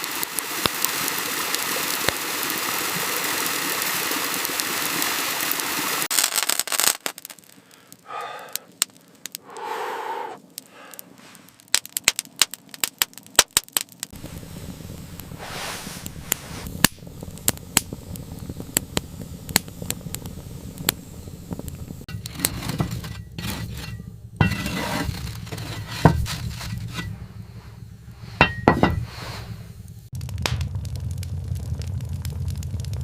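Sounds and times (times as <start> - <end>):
steady low hum: 14.2 - 33.0
brief scraping: 15.4 - 16.7, 22.2 - 27.8, 28.8 - 29.7.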